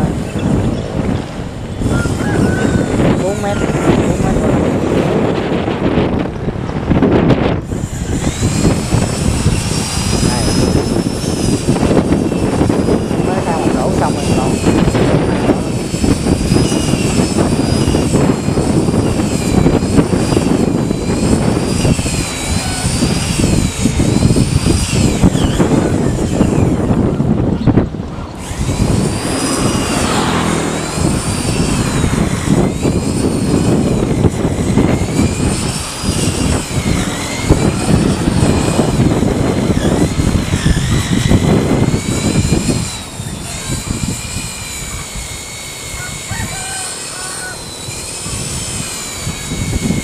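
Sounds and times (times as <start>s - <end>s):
loud machine noise: 0.0s - 50.0s
wavering high whine: 0.0s - 50.0s.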